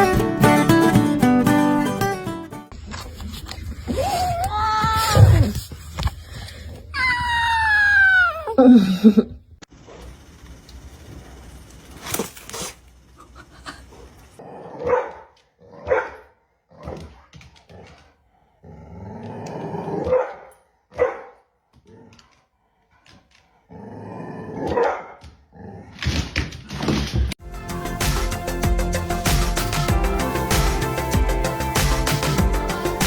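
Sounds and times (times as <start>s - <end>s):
dog barking: 14.6s - 17.2s, 20.0s - 21.5s, 24.6s - 25.2s.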